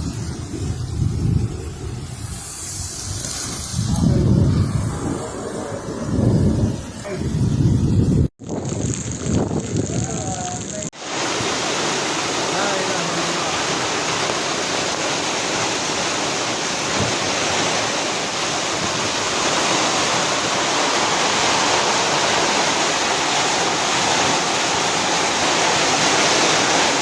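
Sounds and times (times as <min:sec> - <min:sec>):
rushing water: 0:10.9 - 0:27.0.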